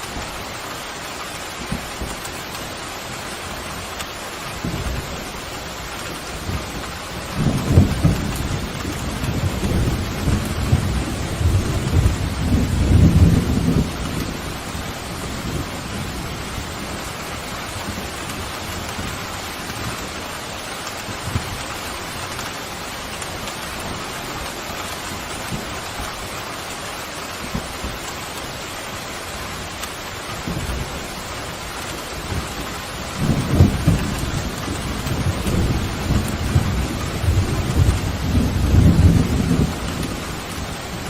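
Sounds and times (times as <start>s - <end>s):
heavy rain: 0.0s - 41.0s
thunder rumbling: 4.6s - 22.2s, 29.5s - 41.0s.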